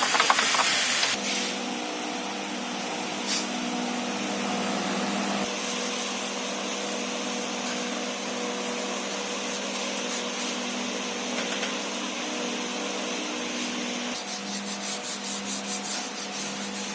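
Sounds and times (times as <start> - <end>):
polisher rubbing on paintwork: 5.4 - 11.3, 13.1 - 16.9.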